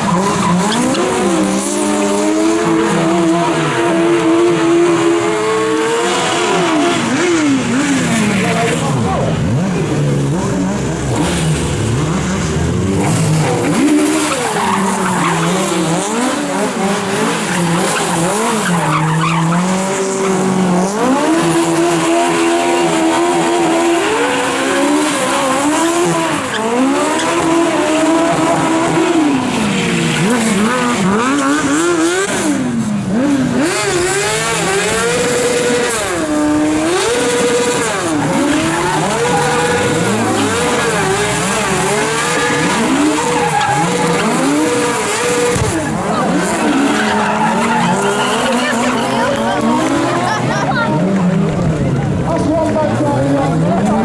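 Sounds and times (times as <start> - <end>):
car engine revving hard: 0.0 - 54.0
tyre squeal: 12.8 - 32.5, 36.8 - 49.1.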